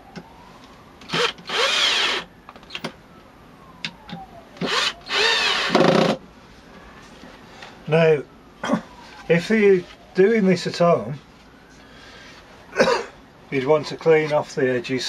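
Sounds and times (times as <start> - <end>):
cordless drill driving screws: 1.0 - 2.3, 4.6 - 6.2.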